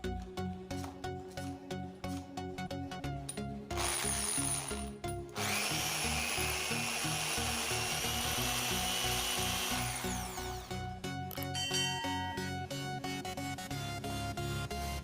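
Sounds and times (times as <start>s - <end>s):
background music: 0.0s - 15.0s
electric drill motor whining: 3.8s - 11.0s.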